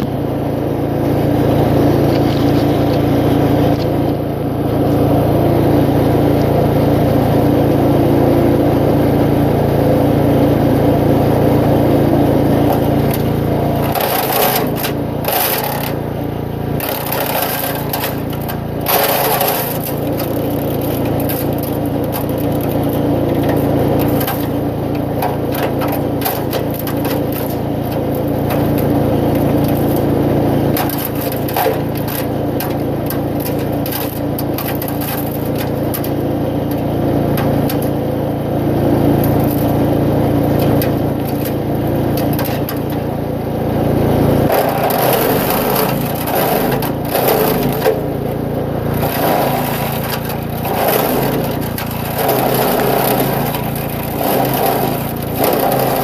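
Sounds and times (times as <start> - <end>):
wood chipper engine humming: 0.0 - 56.0
rough crunching: 0.9 - 4.4, 12.2 - 56.0
branches crackling and splintering: 16.7 - 37.9, 48.8 - 56.0.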